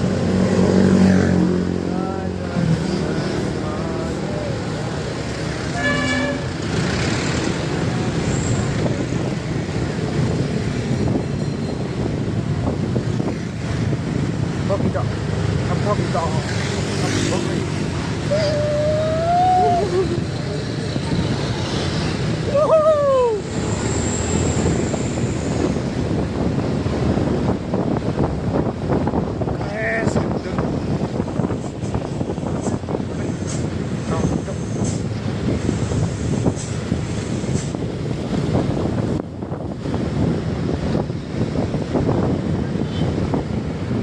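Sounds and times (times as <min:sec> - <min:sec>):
heavy road traffic: 0:00.0 - 0:44.0
trucks passing: 0:00.0 - 0:44.0
vehicle horn toot: 0:05.7 - 0:06.6.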